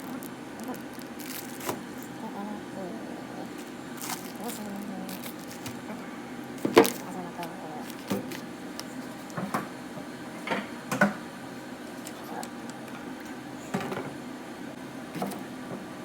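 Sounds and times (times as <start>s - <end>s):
low background hum: 0.0s - 16.0s
kitchen items knocking and clicking: 6.6s - 7.1s, 7.8s - 8.4s.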